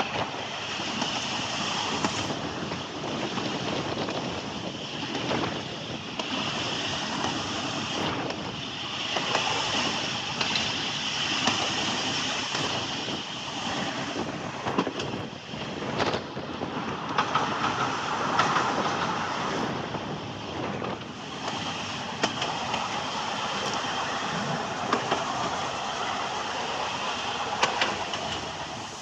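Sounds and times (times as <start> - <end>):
train rumbling and rattling on rails: 0.0 - 29.0
wind on microphone: 0.0 - 29.0.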